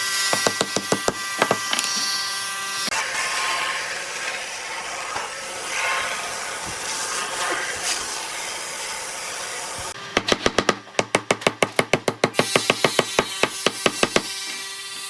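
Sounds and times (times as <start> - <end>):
tool rasping wood: 0.0 - 2.9, 12.3 - 15.0.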